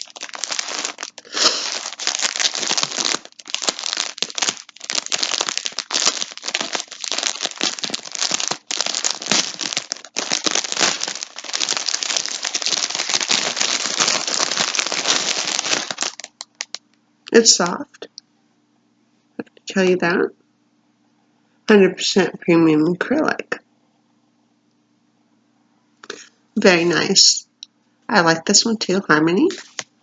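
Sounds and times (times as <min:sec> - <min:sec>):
packaging crinkling and rustling: 0:00.0 - 0:16.8, 0:29.5 - 0:29.9.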